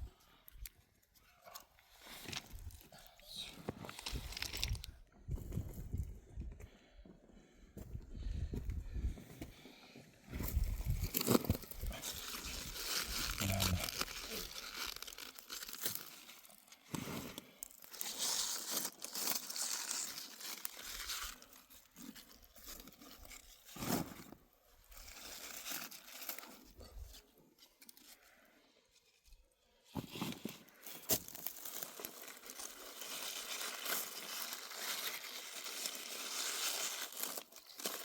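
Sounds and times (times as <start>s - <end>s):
rustling and crunching: 1.2s - 6.1s, 10.3s - 38.0s
tearing: 11.0s - 24.3s, 30.2s - 38.0s.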